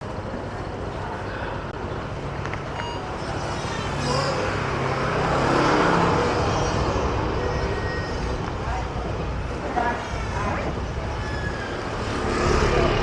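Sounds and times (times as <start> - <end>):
traffic noise: 0.0 - 13.0
wind buffeting microphone: 7.0 - 13.0.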